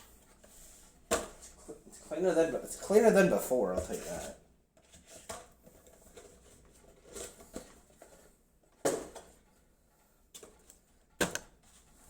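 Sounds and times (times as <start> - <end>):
computer parts knocking and rustling: 10.3 - 12.0.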